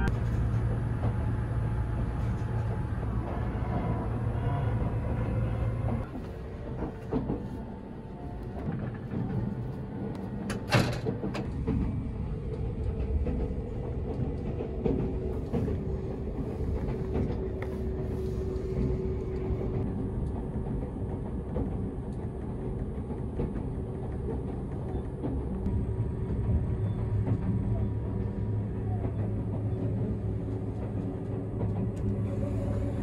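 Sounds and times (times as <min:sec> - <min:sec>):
train cabin rumble: 0:00.0 - 0:33.0.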